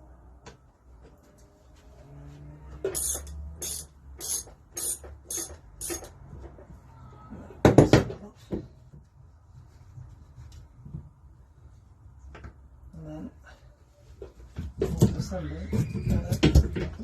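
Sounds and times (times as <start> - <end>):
ratchet spanner clicking: 2.9 - 6.2.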